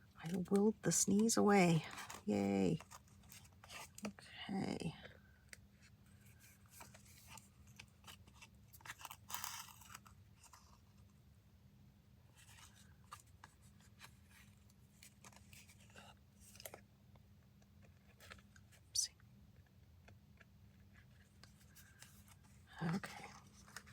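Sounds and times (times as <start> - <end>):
paper and thread rustling: 0.2 - 4.2, 5.7 - 11.2, 12.3 - 16.8, 20.7 - 23.9.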